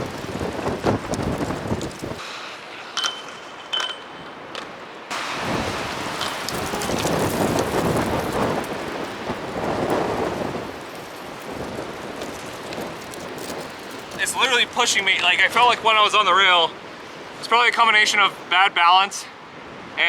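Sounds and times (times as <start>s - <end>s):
wind buffeting microphone: 0.0s - 2.2s, 4.1s - 17.5s.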